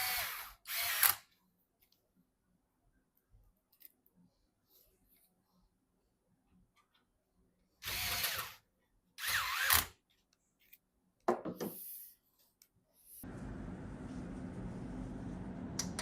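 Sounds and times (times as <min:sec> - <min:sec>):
small power tool motor: 0:00.0 - 0:01.2, 0:07.8 - 0:08.6, 0:09.2 - 0:09.9.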